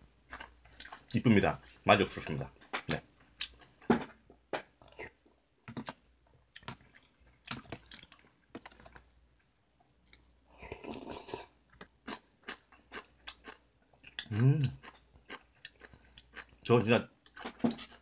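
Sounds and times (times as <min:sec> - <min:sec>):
person chewing: 0:00.3 - 0:01.2, 0:02.9 - 0:03.7, 0:05.8 - 0:09.2, 0:10.0 - 0:18.0.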